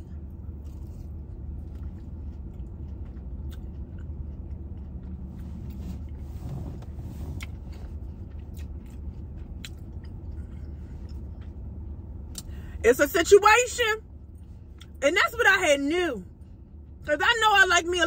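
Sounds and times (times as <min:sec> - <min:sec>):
person chewing crunchy fries: 0:00.0 - 0:06.2, 0:07.3 - 0:12.6
low hum in car cabin: 0:00.0 - 0:18.0.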